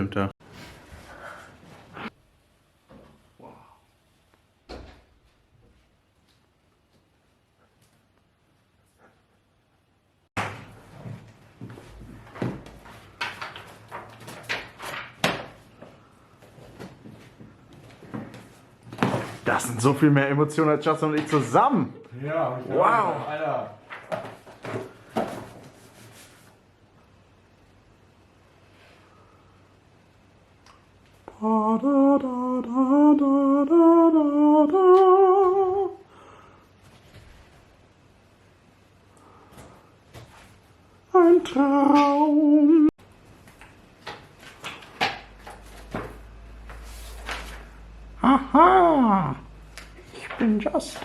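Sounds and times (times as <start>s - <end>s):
objects knocking and thumping: 10.4s - 19.6s, 23.9s - 25.8s
person humming: 31.3s - 36.1s, 41.1s - 42.9s, 48.2s - 49.5s.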